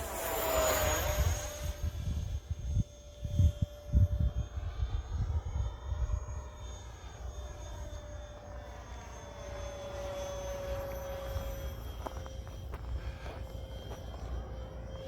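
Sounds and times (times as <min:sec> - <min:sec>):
model plane motor whine: 0:00.0 - 0:15.0
wind buffeting microphone: 0:00.8 - 0:06.5.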